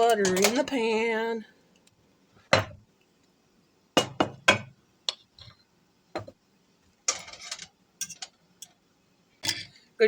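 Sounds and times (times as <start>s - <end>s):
kitchen utensils clicking and clinking: 0.0s - 0.9s, 7.0s - 8.8s.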